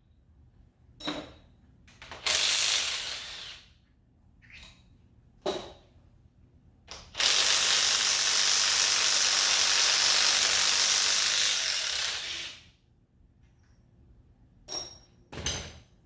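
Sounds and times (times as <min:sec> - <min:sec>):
power ratchet running: 0:02.3 - 0:03.6, 0:07.2 - 0:12.6.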